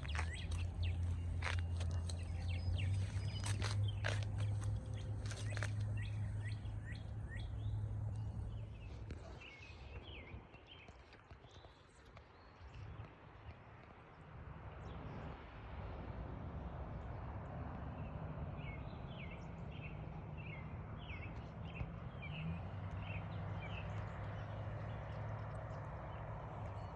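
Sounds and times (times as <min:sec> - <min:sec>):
steady low hum: 0:00.0 - 0:09.6
bird chirping: 0:00.0 - 0:10.3.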